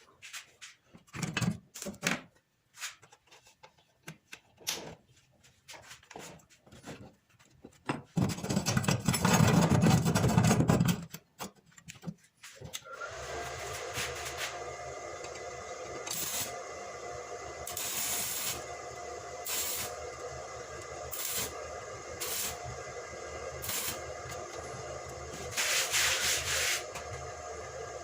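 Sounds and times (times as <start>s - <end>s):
welding machine hum: 12.9s - 28.0s
welding arc hissing and crackling: 16.0s - 16.6s, 17.6s - 18.7s, 19.4s - 22.8s, 23.6s - 27.2s.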